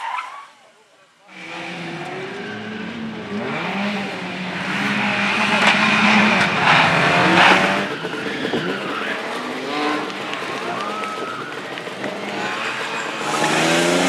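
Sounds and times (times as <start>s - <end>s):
car engine revving: 1.3s - 14.0s.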